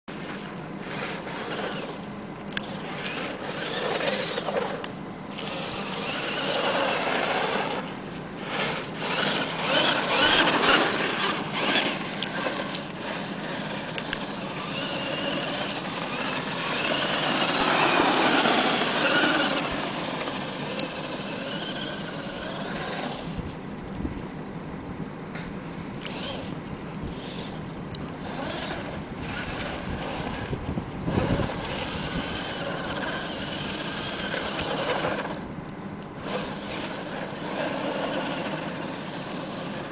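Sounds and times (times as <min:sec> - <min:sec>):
rc truck motor whining: 0:00.2 - 0:23.6, 0:25.4 - 0:35.6, 0:36.2 - 0:39.9
tyres rumbling on ground: 0:02.9 - 0:23.4.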